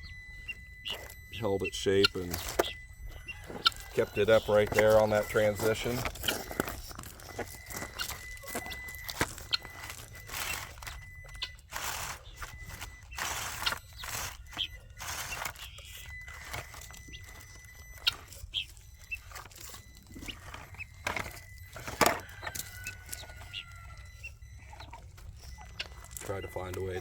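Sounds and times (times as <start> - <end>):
crunching on gravelly ground: 0.0 - 27.0.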